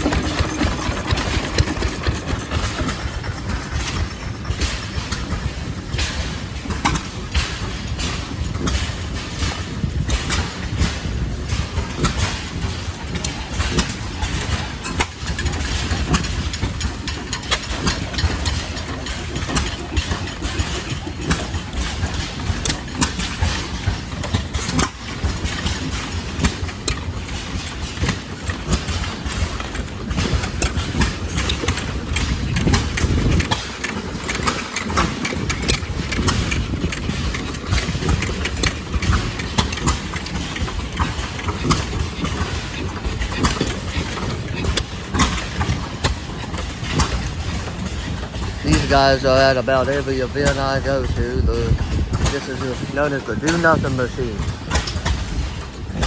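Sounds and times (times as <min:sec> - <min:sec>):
sharp exhaust pops: 0:00.0 - 0:56.0
stationary gas engines running: 0:00.0 - 0:56.0.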